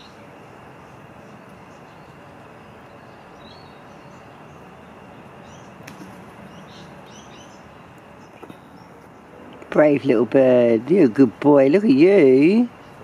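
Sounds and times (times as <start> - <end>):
outdoor background noise: 0.0 - 13.0
high bird chirps: 2.8 - 9.3.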